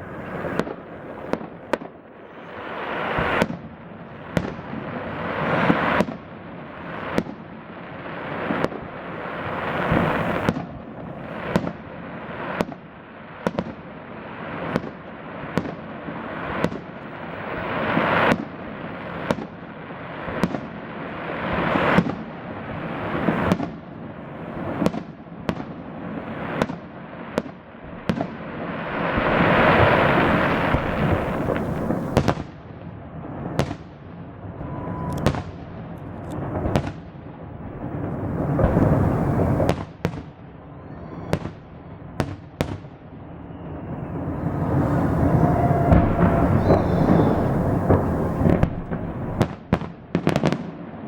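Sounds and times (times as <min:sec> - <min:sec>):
crackling fireworks noise: 0:00.0 - 0:51.0
fireworks bursting with sharp bangs: 0:00.0 - 0:51.0.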